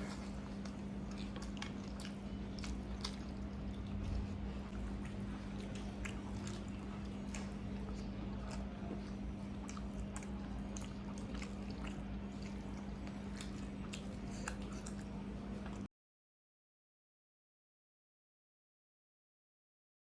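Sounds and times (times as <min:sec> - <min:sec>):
steady low hum: 0:00.0 - 0:15.9
wet chewing and mouth smacks: 0:00.0 - 0:15.9.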